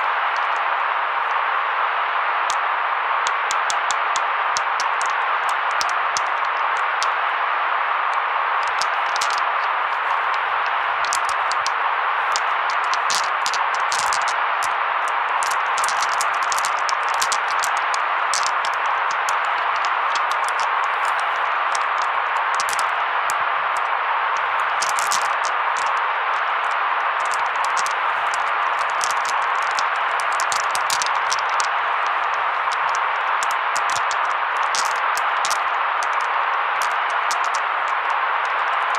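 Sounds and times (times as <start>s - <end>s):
faint static crackles: 0.0s - 38.9s
filtered white noise hiss: 0.0s - 38.9s
short crackling ticks: 15.4s - 20.8s, 24.8s - 26.0s.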